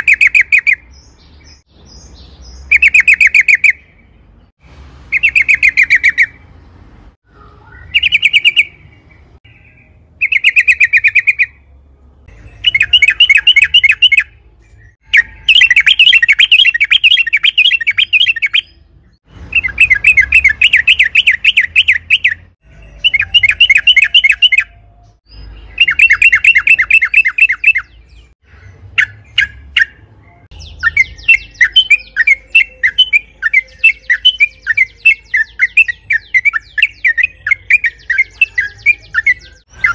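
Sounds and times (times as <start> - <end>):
bird singing rattling notes: 7.6 - 11.6, 12.2 - 39.9.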